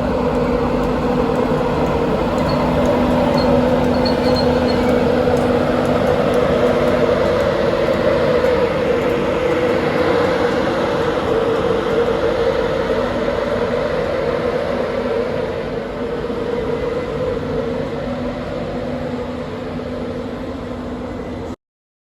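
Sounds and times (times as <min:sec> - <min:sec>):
train rumbling: 0:00.0 - 0:21.6.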